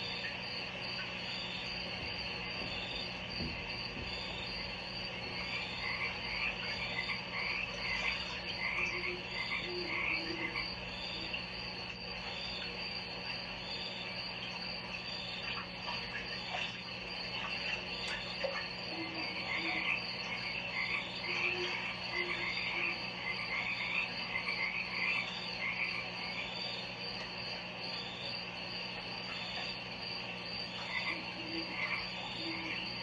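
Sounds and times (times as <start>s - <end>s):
frog-like chirping calls: 2.4s - 33.0s.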